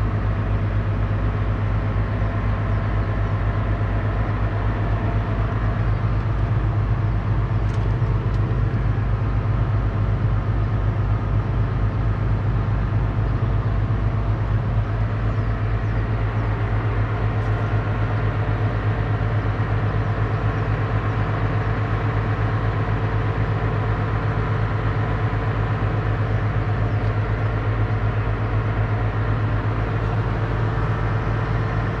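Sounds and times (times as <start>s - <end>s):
tractor diesel engine humming: 0.0s - 32.0s.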